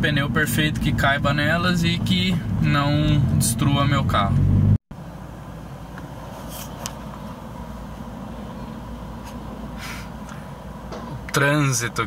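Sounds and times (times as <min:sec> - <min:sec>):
faint short hisses: 0:09.2 - 0:10.2.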